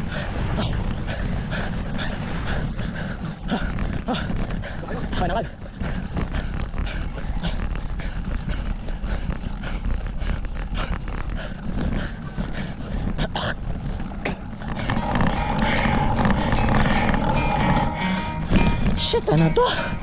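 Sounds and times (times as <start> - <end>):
wind buffeting microphone: 0.0 - 20.0
bicycle clicks and rattles: 0.9 - 16.2
steady tones: 13.6 - 20.0.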